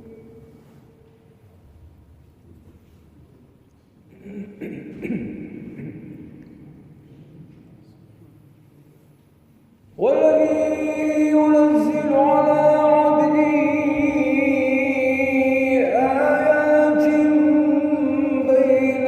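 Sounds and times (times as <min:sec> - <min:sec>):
man chanting recitation: 0:09.9 - 0:19.0.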